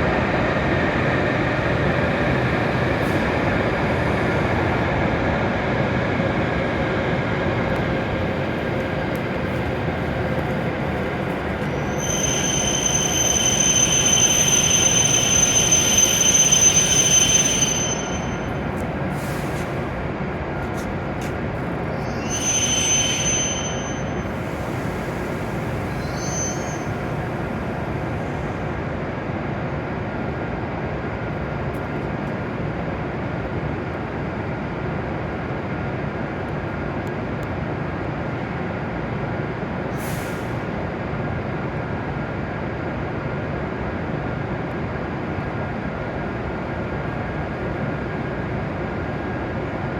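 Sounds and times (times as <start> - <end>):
train pulling in and rumbling: 0.0 - 49.9
brake squeal: 11.3 - 19.7, 21.9 - 27.2.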